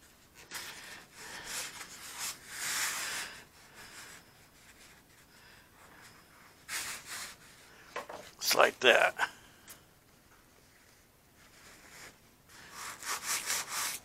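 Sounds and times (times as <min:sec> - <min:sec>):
hands rubbing tape on foam: 0:00.0 - 0:07.6, 0:10.7 - 0:14.0.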